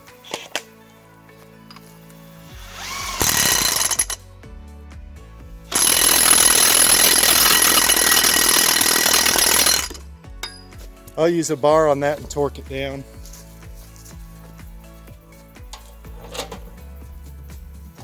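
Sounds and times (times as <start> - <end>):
impact wrench hammering: 2.8 - 4.2, 5.7 - 10.7.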